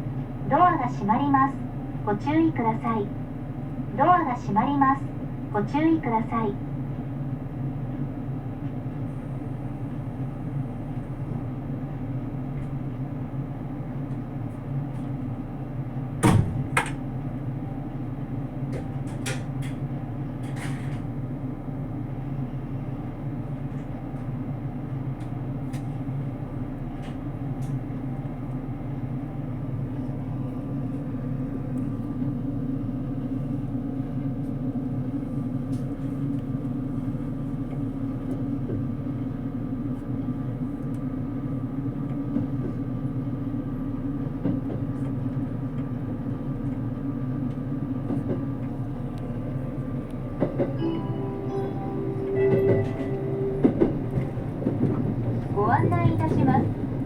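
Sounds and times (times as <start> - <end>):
train cabin hum: 0.0 - 57.0.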